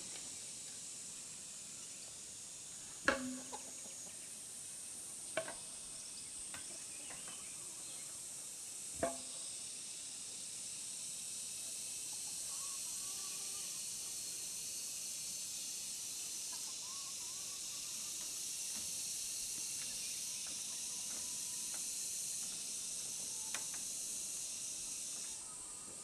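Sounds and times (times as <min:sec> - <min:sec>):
high-pitched insect drone: 0:07.2 - 0:26.0
faint bird chirps: 0:16.5 - 0:18.1.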